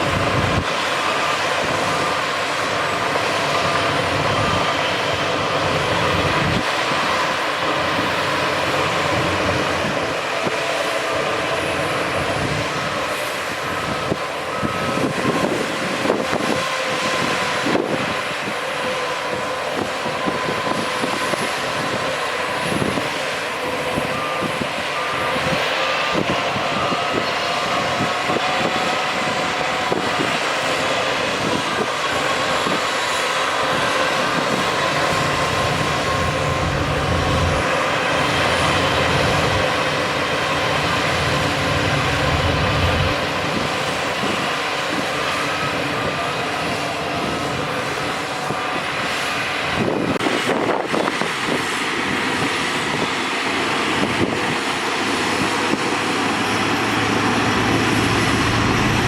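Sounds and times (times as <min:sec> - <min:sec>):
heavy diesel machinery running: 0:00.0 - 0:59.0
deep engine rumble: 0:33.7 - 0:50.3, 0:53.7 - 0:59.0.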